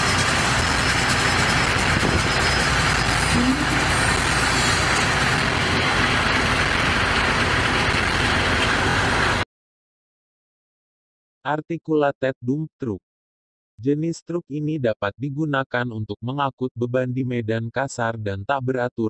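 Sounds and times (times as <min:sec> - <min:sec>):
dump truck diesel engine running: 0:00.0 - 0:09.4.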